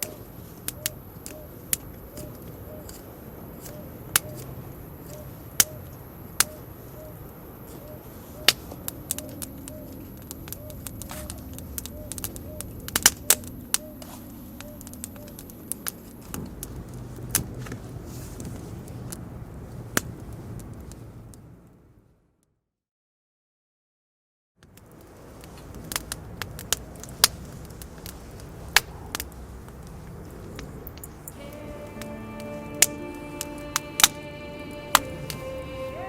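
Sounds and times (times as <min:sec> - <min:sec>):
campfire crackling: 0:00.0 - 0:21.6, 0:24.6 - 0:36.0
fire popping: 0:00.0 - 0:21.6, 0:24.6 - 0:36.0
low steady rush: 0:31.2 - 0:36.0.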